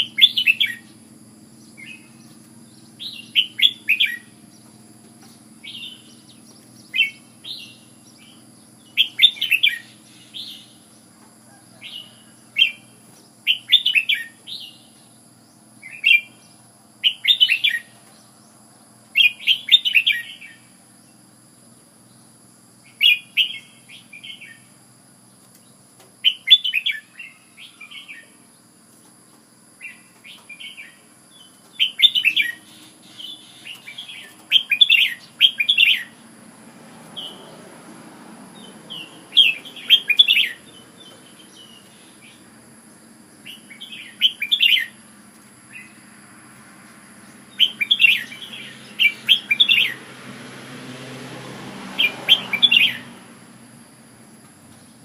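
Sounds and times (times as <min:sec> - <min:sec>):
bird singing whistled phrases: 0:00.0 - 0:01.0, 0:02.9 - 0:04.4, 0:09.0 - 0:10.7, 0:13.5 - 0:14.9, 0:17.0 - 0:17.9, 0:26.2 - 0:28.4, 0:31.8 - 0:36.2, 0:39.4 - 0:40.6, 0:43.5 - 0:45.0, 0:47.6 - 0:50.0, 0:52.0 - 0:53.1.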